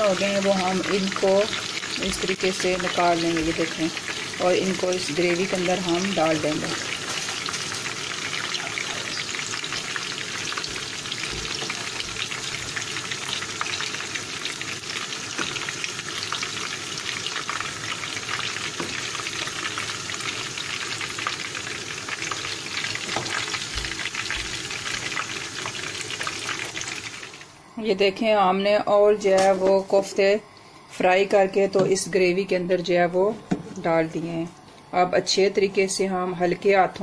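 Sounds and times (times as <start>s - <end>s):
meatballs sizzling in hot oil: 0.0s - 27.6s.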